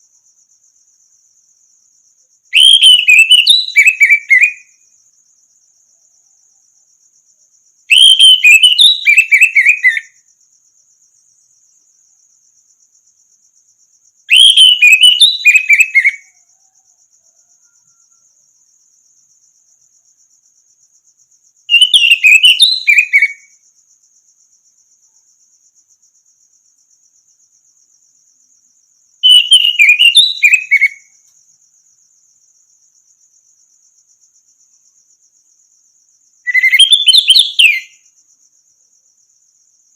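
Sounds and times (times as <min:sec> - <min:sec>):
thrush singing whistled notes: 0:02.6 - 0:04.8, 0:07.9 - 0:10.2, 0:14.3 - 0:16.4, 0:21.7 - 0:23.5, 0:29.2 - 0:31.2, 0:36.5 - 0:38.0.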